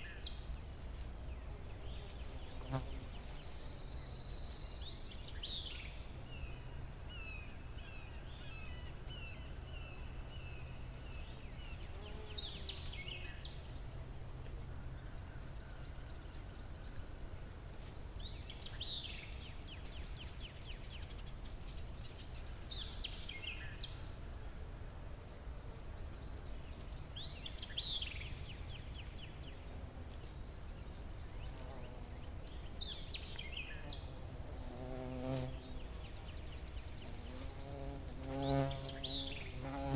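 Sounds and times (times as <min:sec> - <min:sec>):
high-pitched insect buzz: 0:33.6 - 0:39.9.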